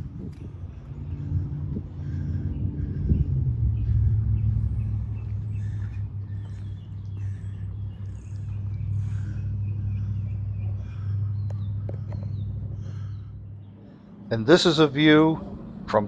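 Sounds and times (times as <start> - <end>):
small birds chirping: 0.0 - 15.8
steady low drone: 0.0 - 16.0.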